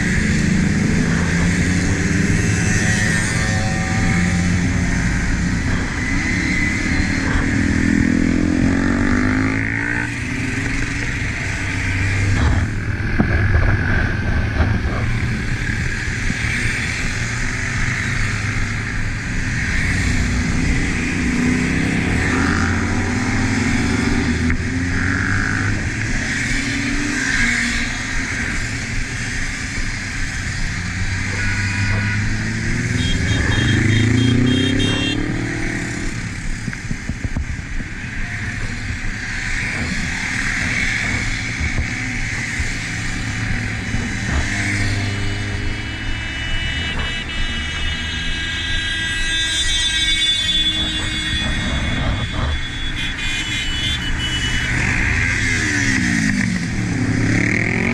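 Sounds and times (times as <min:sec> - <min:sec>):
motorcycle engine accelerating: 0:00.0 - 0:48.7, 0:50.0 - 0:53.0
wind noise on microphone: 0:34.7 - 0:46.2, 0:50.0 - 0:53.3.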